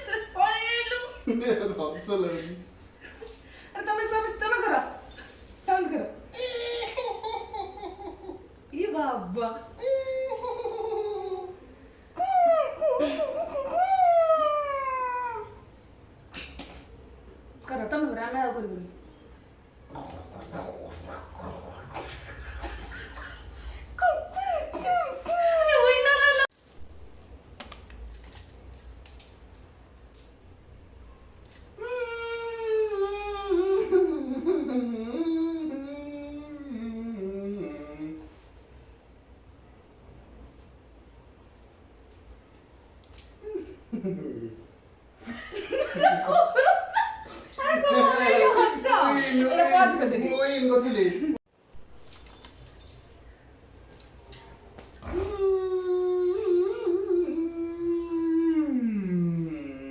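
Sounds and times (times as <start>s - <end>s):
person making a long wordless whine: 31.8s - 38.5s, 55.0s - 59.9s.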